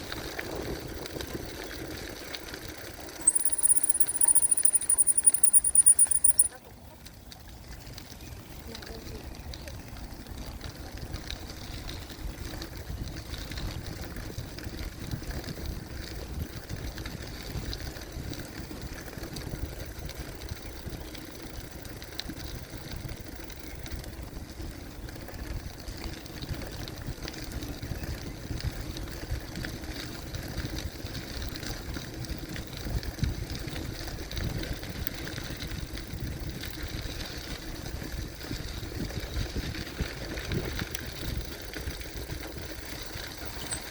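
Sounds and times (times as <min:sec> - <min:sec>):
bicycle tyres on trail: 0:00.0 - 0:43.9
wind buffeting microphone: 0:23.9 - 0:43.9.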